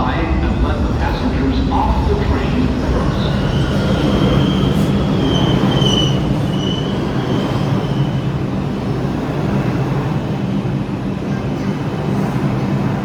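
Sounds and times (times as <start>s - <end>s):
subway train low rumble: 0.0s - 13.0s
train wheels squealing on rails: 2.3s - 8.9s.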